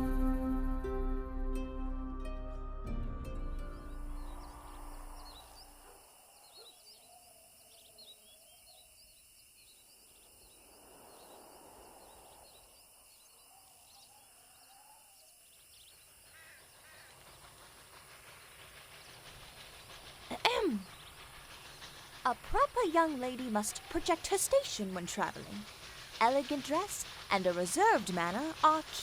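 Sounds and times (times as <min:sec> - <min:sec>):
music: 0:00.0 - 0:05.2
small birds chirping: 0:03.6 - 0:29.0
wavering lower bird calls: 0:11.1 - 0:29.0.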